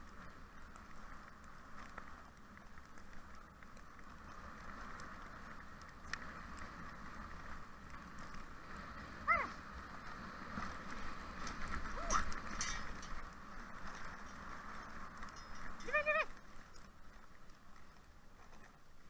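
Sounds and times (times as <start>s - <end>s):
dog yelp: 9.3s - 9.6s, 12.0s - 12.3s.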